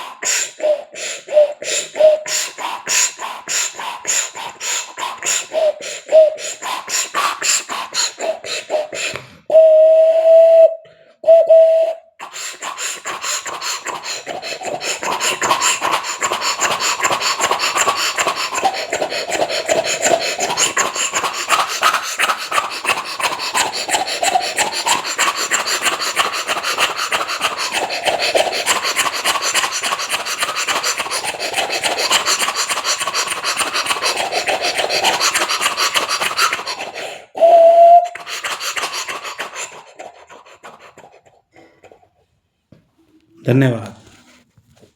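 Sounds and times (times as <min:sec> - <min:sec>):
raspy mouth chuffing: 0:00.0 - 0:09.6, 0:12.1 - 0:42.4
man imitating steam locomotive: 0:00.0 - 0:40.9
voiced whistle-like tone: 0:09.5 - 0:12.1, 0:37.4 - 0:38.2.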